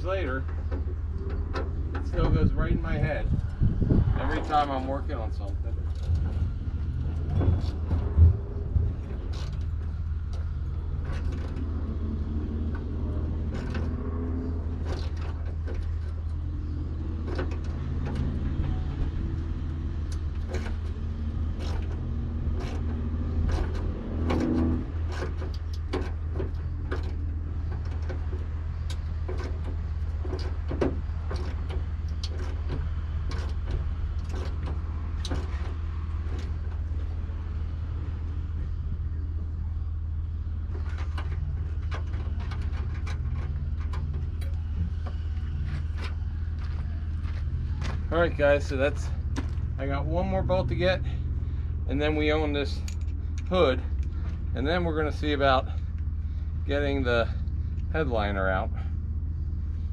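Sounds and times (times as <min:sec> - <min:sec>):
steady low rumble: 0:00.0 - 0:59.9.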